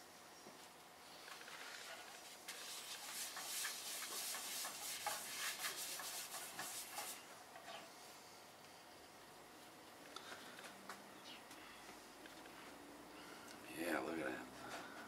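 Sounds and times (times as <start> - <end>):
paper towel wiping frying pan: 1.9 - 7.2.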